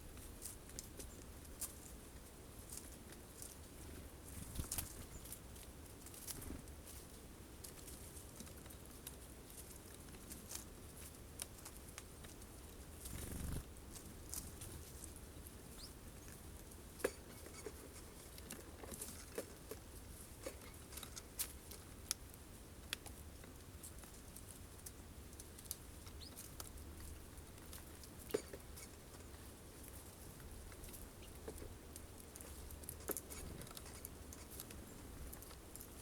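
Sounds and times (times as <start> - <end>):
beaks pecking at seeds: 7.6 - 36.0.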